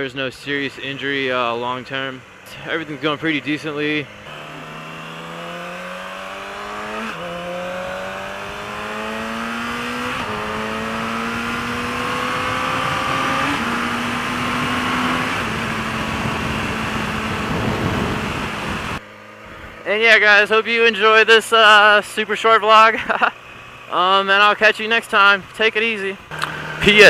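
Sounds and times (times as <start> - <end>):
motorcycle engine accelerating: 0.0 - 25.4, 26.2 - 27.0
wind rush over microphone: 12.3 - 19.0.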